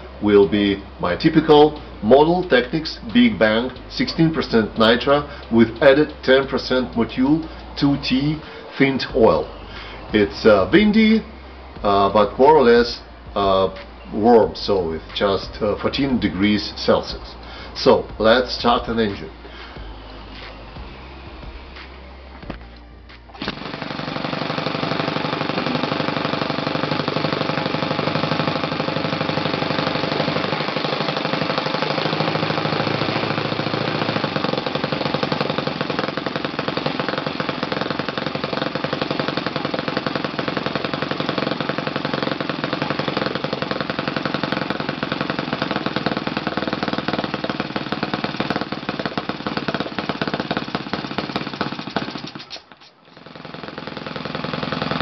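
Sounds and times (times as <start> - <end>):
model engine running: 23.4 - 55.0.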